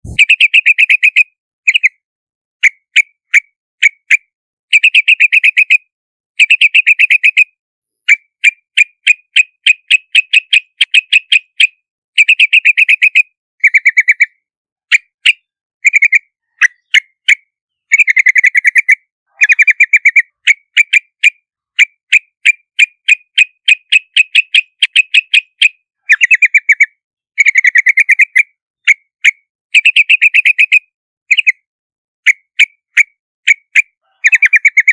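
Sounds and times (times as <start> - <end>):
bird chattering calls: 0.0 - 1.8, 14.9 - 17.2, 17.9 - 21.0, 22.8 - 26.8, 33.5 - 34.9.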